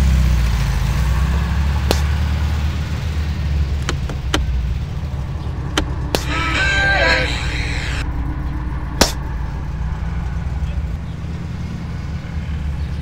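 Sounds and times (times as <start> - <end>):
car engine humming: 0.0 - 13.0
sharp clicks: 3.8 - 4.6.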